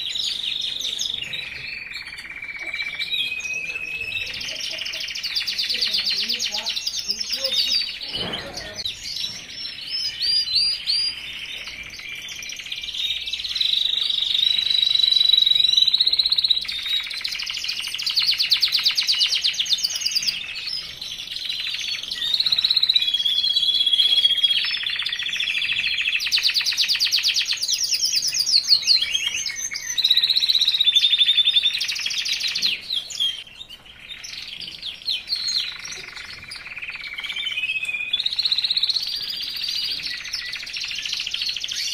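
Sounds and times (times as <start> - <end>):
songbird singing trills and chirps: 0.0 - 41.9.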